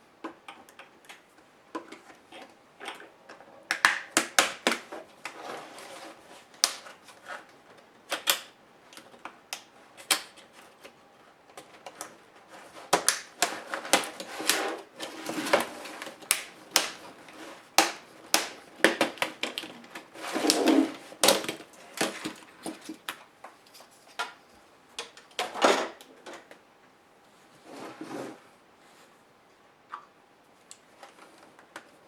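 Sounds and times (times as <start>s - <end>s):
scraping of laptop parts: 18.8s - 23.1s.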